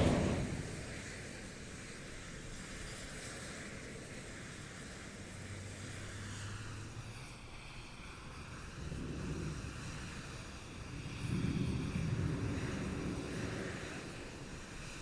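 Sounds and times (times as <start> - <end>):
low rumble: 0.0 - 0.9
jet engine rushing: 0.0 - 1.0.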